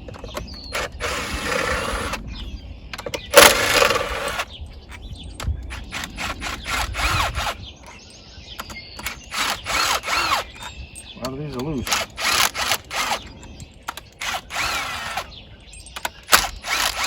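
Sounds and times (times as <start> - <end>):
electric impact wrench running: 0.7 - 2.2, 3.3 - 4.5, 5.7 - 7.6, 9.0 - 10.6, 11.8 - 13.3, 14.2 - 15.3, 16.3 - 17.0.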